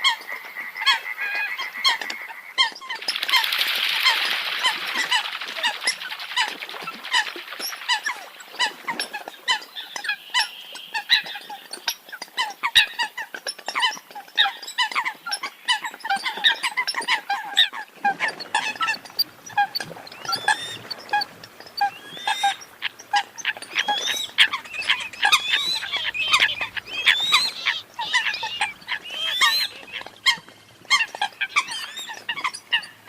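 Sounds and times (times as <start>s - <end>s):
coots calling: 9.5s - 33.0s.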